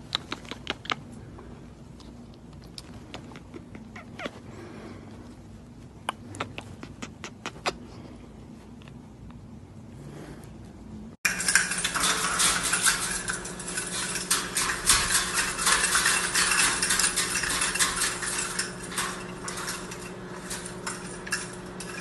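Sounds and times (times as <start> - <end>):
steady low hum: 0.0 - 22.0
parrot rattling plastic toy: 11.2 - 22.0.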